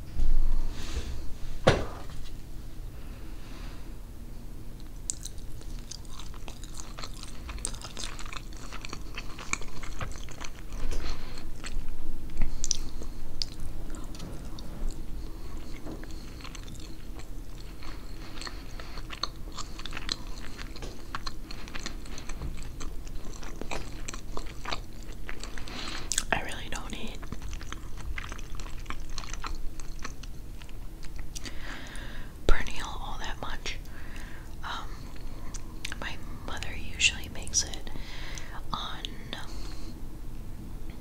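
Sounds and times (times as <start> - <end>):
chewing crackling clicks: 4.8 - 32.0.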